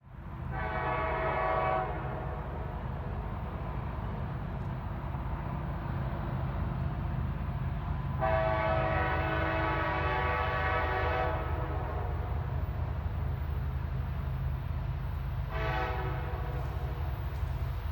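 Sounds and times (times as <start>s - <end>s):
locomotive air horn blast: 0.5s - 2.6s, 8.2s - 12.6s, 15.4s - 17.1s
locomotive low rumble: 11.4s - 17.9s.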